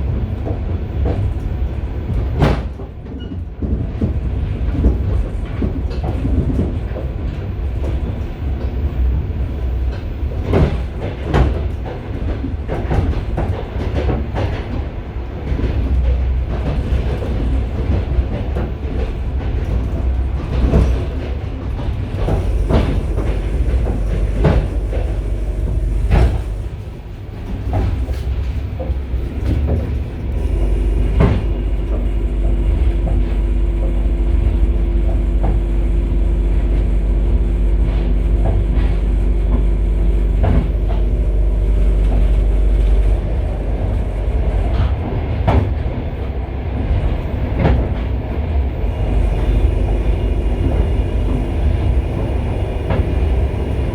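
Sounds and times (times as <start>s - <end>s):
wheels clacking over rail joints: 0.0s - 35.8s
train carriage rumble: 0.0s - 53.9s
steady hum: 22.1s - 46.2s, 48.7s - 53.9s.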